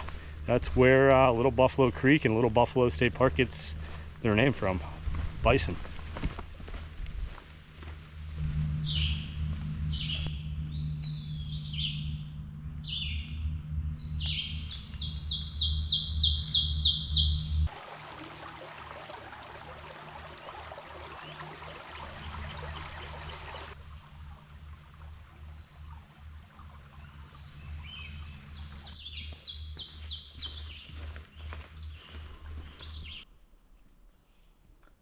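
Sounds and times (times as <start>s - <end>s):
steady low rumble: 0.0s - 29.7s
songbird singing with trills: 8.8s - 17.6s, 27.0s - 32.1s
water flowing down creek cascade: 17.7s - 23.8s.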